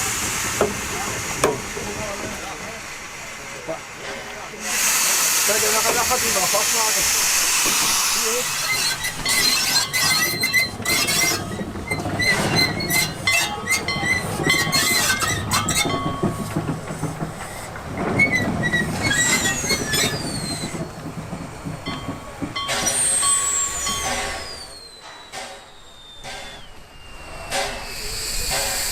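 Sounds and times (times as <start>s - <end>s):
wheel flanges squealing: 5.5s - 28.9s
metal clanks from couplings: 21.6s - 26.7s.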